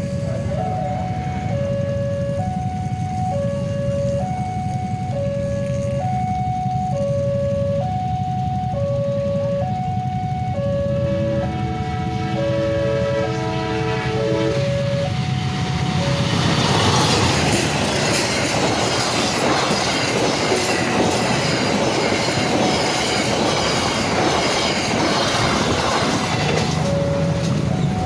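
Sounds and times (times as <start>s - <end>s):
crossing warning alarm: 0.0s - 28.0s
train wheels rumbling on rails: 0.0s - 28.0s
wheels clicking over rail joints: 16.2s - 28.0s.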